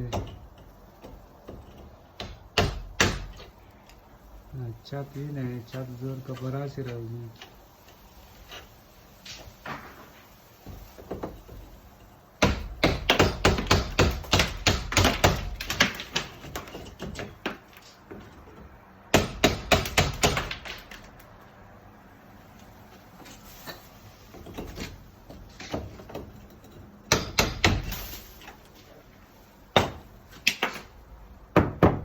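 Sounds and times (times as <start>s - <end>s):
rapid hard knocks: 12.4s - 16.6s.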